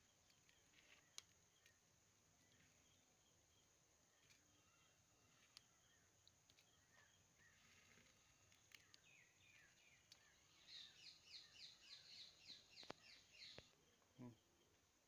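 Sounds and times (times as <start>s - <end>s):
high insect hum: 0.0s - 15.0s
small clicks: 0.2s - 1.8s, 5.3s - 10.3s.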